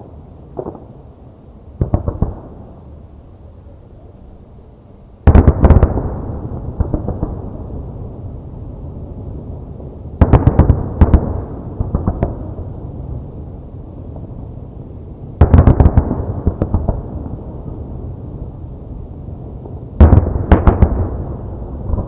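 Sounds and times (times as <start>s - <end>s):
fireworks bangs: 0.0s - 1.0s, 1.8s - 2.8s, 5.2s - 8.0s, 19.6s - 22.0s
small firework cracks: 0.5s - 1.0s, 1.8s - 2.9s, 19.6s - 22.0s.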